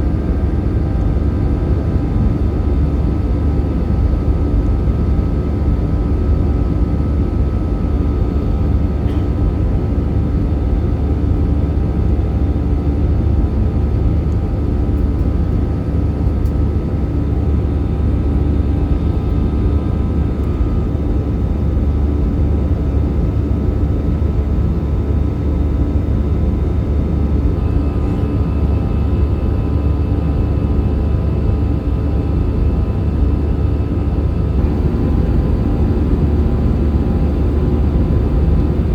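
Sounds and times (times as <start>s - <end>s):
airplane cabin engine rumble: 27.4s - 38.9s
faint steady tones: 34.6s - 38.9s.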